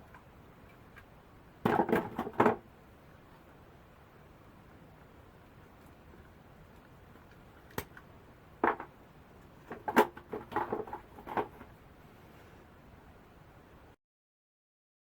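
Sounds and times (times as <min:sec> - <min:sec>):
plastic parts clicking and knocking: 0:00.1 - 0:02.6, 0:06.7 - 0:09.0, 0:09.6 - 0:11.8.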